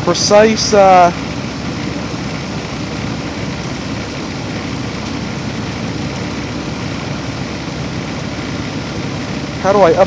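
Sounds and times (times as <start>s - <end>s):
heat pump fan whooshing: 0.0s - 10.0s.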